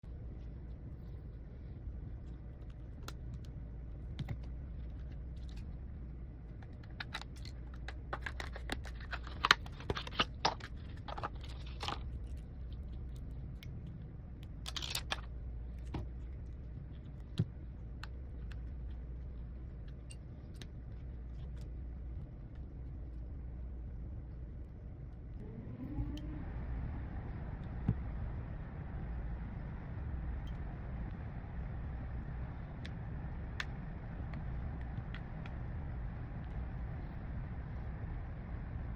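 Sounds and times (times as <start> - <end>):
steady low hum: 0.0 - 38.9
small tools clicking and tapping: 6.6 - 12.4.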